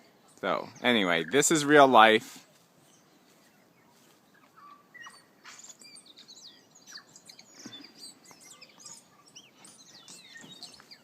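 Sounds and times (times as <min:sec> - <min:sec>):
tui singing: 0:00.0 - 0:11.0.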